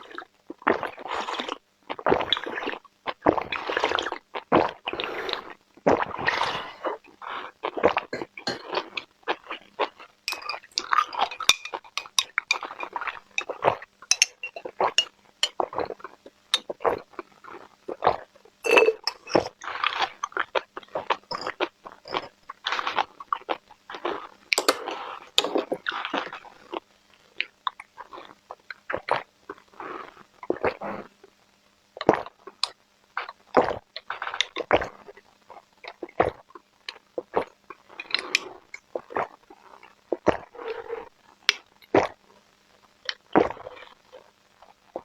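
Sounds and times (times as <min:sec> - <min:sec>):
person chewing crunchy food: 0:06.3 - 0:26.8.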